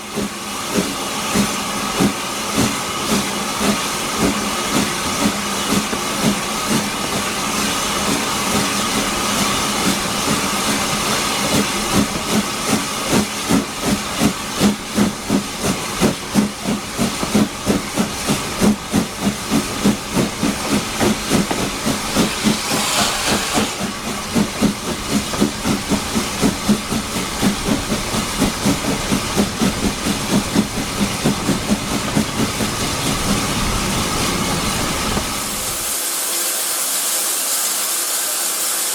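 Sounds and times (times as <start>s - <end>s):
steam locomotive chuffing: 0.0s - 38.9s
steam hiss: 16.7s - 38.9s.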